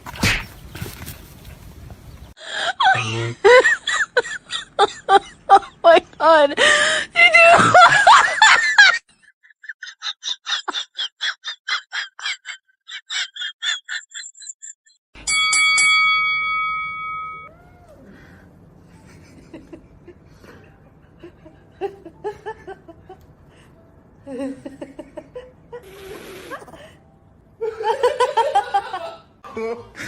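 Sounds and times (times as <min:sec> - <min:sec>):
bell-like ding: 0:15.2 - 0:17.5.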